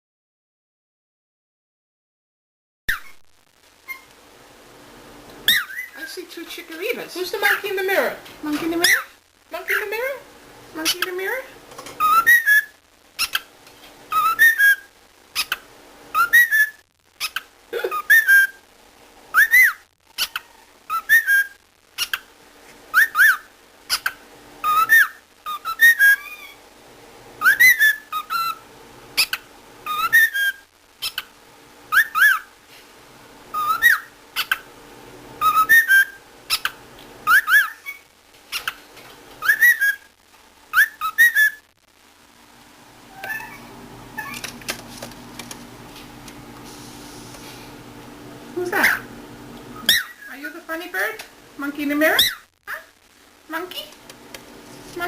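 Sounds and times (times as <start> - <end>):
cockatiel chirping and whistling: 2.9 - 3.2, 3.8 - 4.1, 5.4 - 6.1, 12.0 - 13.5, 14.1 - 18.6, 19.3 - 22.2, 22.9 - 26.6, 27.4 - 28.6, 29.2 - 31.3, 31.9 - 32.5, 33.5 - 34.6, 35.4 - 38.8, 39.4 - 40.1, 40.7 - 41.6, 43.1 - 43.6, 44.2 - 44.4, 49.8 - 50.4, 52.2 - 52.5.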